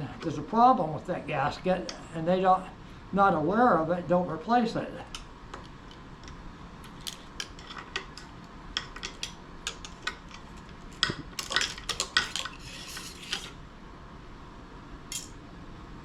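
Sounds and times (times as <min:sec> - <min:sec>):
metal tool clicking and scraping: 0:15.1 - 0:15.4.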